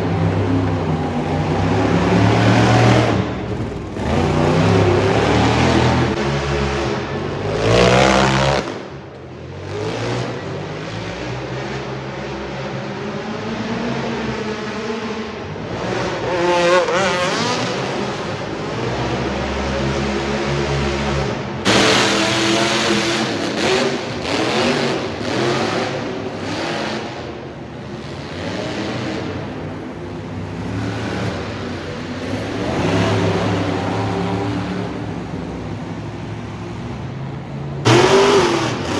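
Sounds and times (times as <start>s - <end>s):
steady roar of noise: 0.0s - 9.1s
monster truck engine revving: 0.0s - 38.9s.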